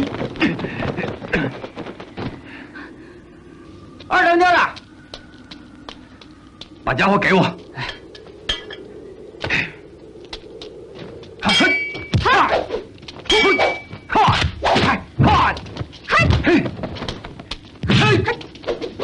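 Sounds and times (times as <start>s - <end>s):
ringing hit: 11.4s - 12.2s.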